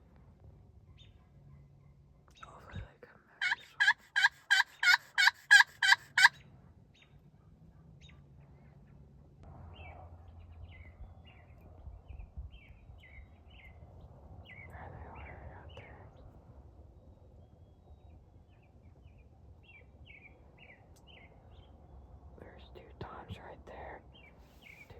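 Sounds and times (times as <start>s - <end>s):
low background rumble: 0.0s - 6.6s, 8.5s - 24.9s
turkey yelps: 3.4s - 6.4s.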